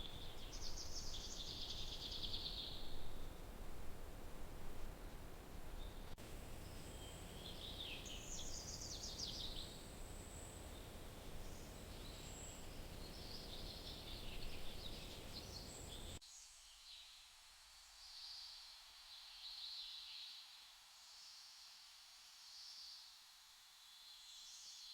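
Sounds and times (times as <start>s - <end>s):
songbirds chirping: 0.0s - 16.2s
low outdoor background noise: 0.0s - 24.9s.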